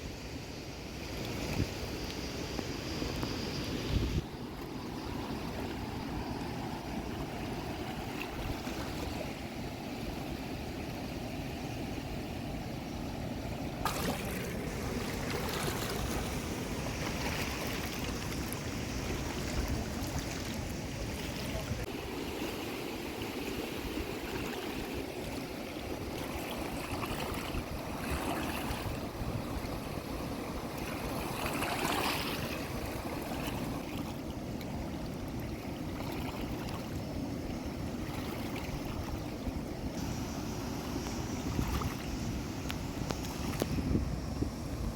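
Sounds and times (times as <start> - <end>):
flowing water rushing: 0.0 - 44.9.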